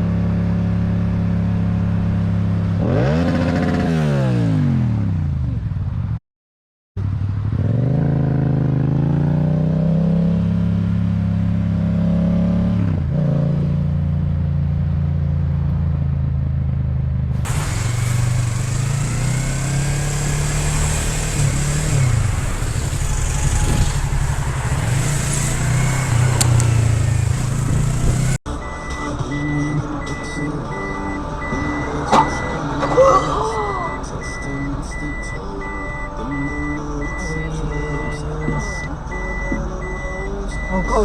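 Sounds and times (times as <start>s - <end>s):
motorcycle engine revving: 0.0s - 5.6s, 7.4s - 14.7s, 17.3s - 28.4s
wind and road noise: 0.0s - 6.2s, 7.0s - 41.0s.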